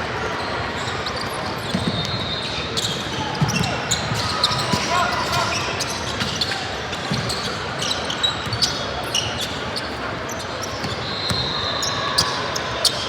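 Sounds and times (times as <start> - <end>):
murmur of voices: 0.0 - 13.0
basketball bouncing on court: 2.9 - 4.9.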